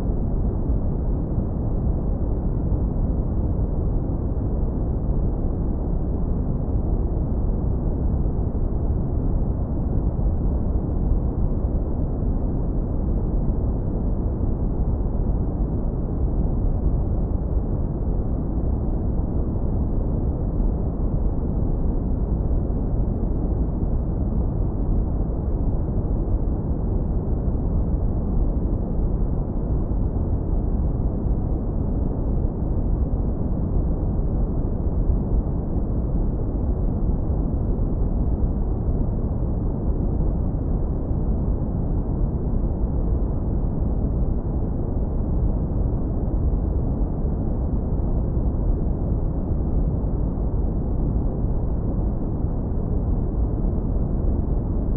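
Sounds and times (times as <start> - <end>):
deep brown noise rumble: 0.0 - 54.9.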